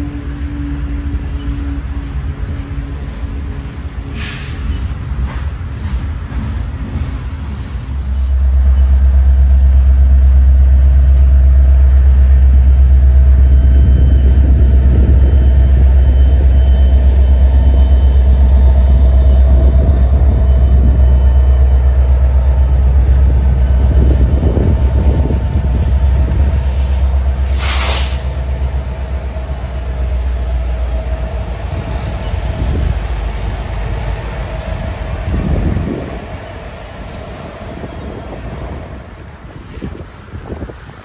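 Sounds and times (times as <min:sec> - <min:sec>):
freight train rumbling past: 0:00.0 - 0:41.0
train wheel clatter: 0:01.5 - 0:09.8.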